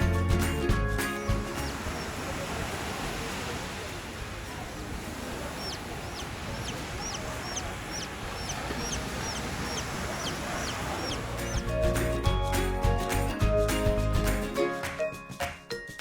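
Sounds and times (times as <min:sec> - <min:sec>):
bird short high chirps: 0:05.6 - 0:11.7.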